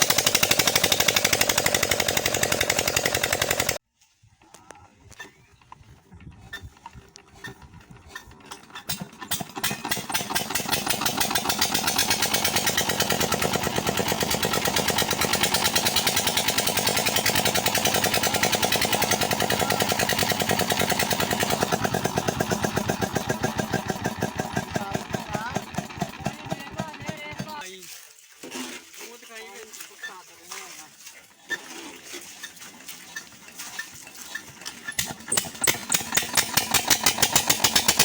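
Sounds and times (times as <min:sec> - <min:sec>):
diesel engine chugging: 0:00.0 - 0:03.8, 0:07.3 - 0:27.6, 0:33.4 - 0:38.0.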